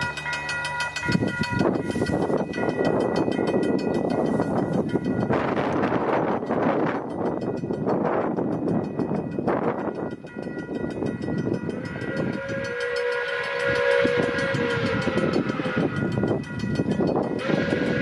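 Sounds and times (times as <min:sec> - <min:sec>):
passing train rumble: 0:00.0 - 0:18.0
steam locomotive whistle: 0:11.6 - 0:18.0.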